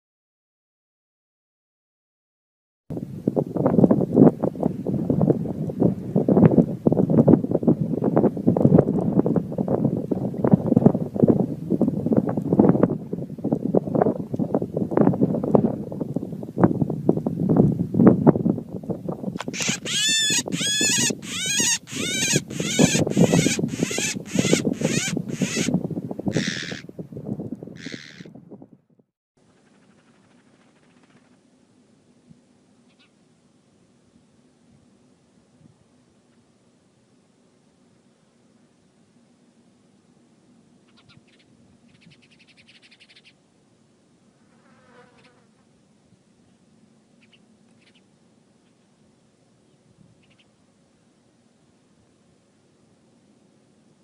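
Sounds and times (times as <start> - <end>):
bird harsh calls: 19.5 - 26.9, 27.8 - 28.3, 32.9 - 33.1, 40.9 - 43.4.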